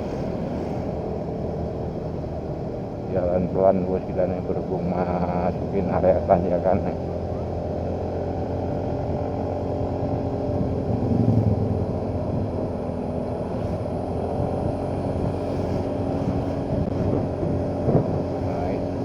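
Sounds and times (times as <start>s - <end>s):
motorcycle engine running: 4.7s - 19.0s.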